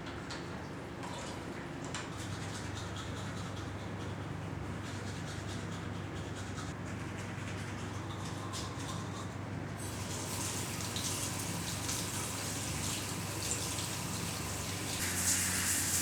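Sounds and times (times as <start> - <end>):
tap water running into sink: 9.8 - 16.0.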